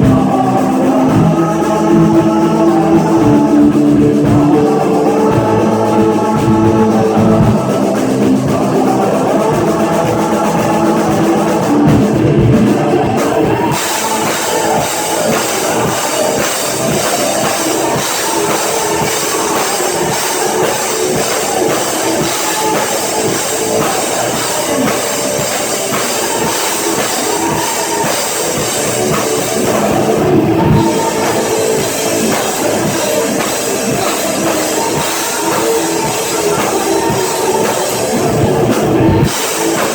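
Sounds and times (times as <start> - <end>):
rock band playing instrumental: 0.0 - 39.9
cymbals: 10.5 - 39.9.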